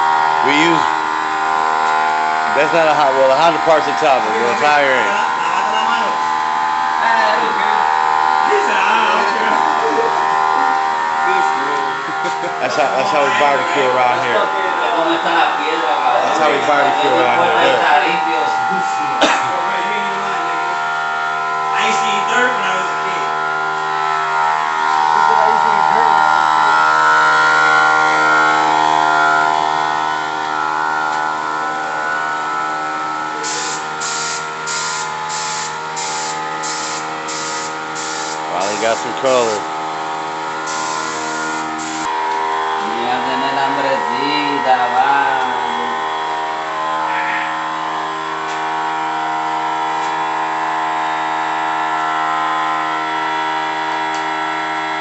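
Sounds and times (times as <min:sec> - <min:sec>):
hum of held tones: 0:00.0 - 0:55.0
paint spraying in hissing passes: 0:33.4 - 0:39.0, 0:40.6 - 0:42.1.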